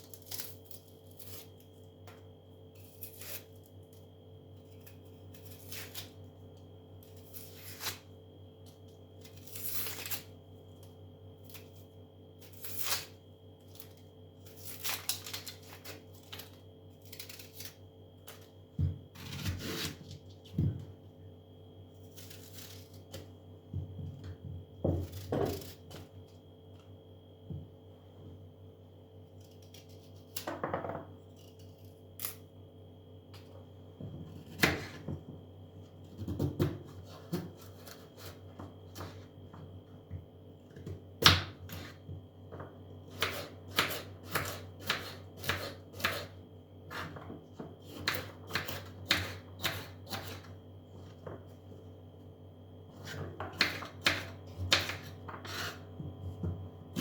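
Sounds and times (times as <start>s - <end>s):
faint steady hum: 0.0s - 57.0s
knife chopping on cutting board: 34.3s - 35.2s, 43.1s - 46.3s, 46.9s - 50.5s, 53.0s - 57.0s.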